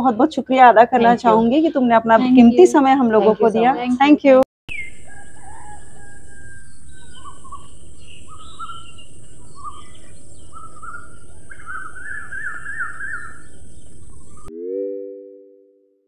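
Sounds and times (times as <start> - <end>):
songbirds chirping and whistling: 4.7 - 14.5.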